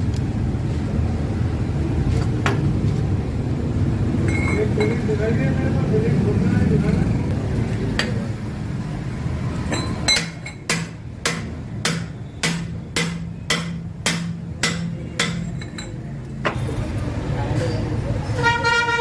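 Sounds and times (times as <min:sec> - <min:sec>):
hammer striking metal: 0:09.7 - 0:16.0.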